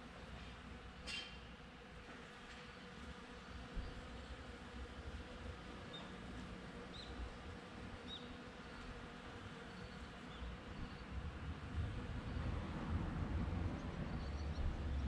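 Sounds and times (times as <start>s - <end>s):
bees buzzing: 0.1s - 15.0s.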